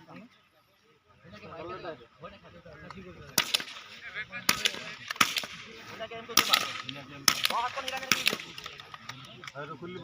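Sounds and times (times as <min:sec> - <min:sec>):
rifle shots cracking: 0:03.4 - 0:08.9.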